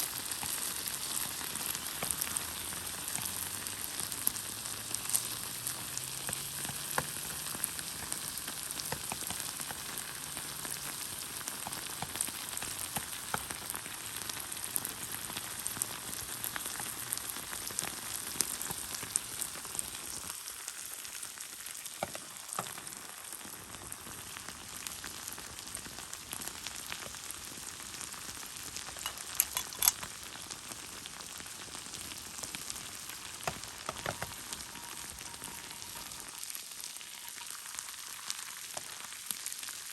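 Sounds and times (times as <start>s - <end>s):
sharp pops and crackles: 0.0s - 15.0s, 25.5s - 30.4s, 31.7s - 36.4s
meat sizzling in a pan: 0.0s - 39.9s.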